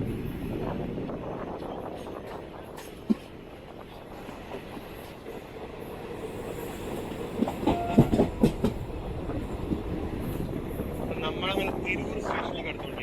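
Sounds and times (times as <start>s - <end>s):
train rumbling on track: 0.0s - 13.0s
wheels clattering over rail joints: 6.8s - 13.0s.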